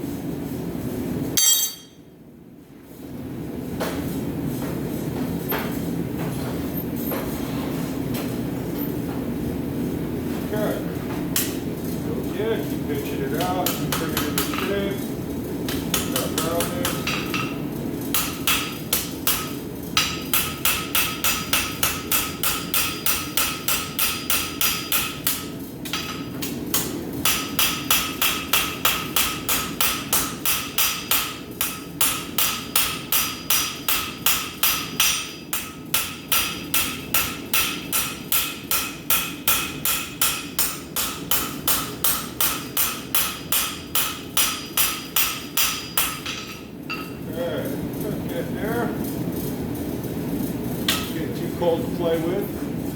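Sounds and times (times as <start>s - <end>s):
hammer striking steel on anvil: 1.4s - 2.1s, 13.4s - 14.8s, 15.7s - 47.2s, 50.9s - 51.2s.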